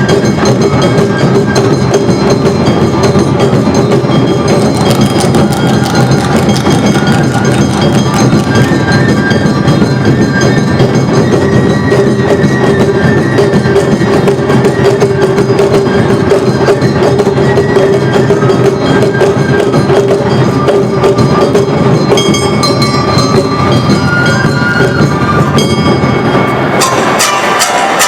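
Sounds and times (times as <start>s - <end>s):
taiko drums: 0.0s - 28.0s
hand gong clanging: 2.0s - 10.0s, 20.8s - 28.0s.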